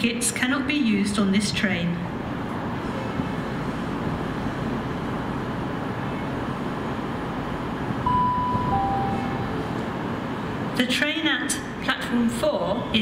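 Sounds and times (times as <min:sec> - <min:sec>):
train rumbling: 0:02.1 - 0:11.9
two-tone chime: 0:08.1 - 0:09.6.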